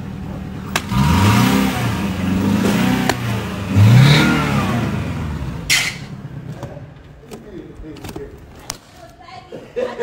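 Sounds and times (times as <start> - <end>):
car engine revving: 0.6 - 6.6.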